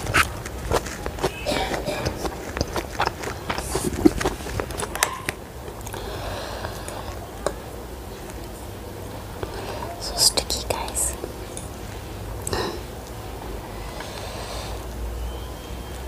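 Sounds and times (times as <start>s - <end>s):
chewing noodles: 0.0s - 6.0s.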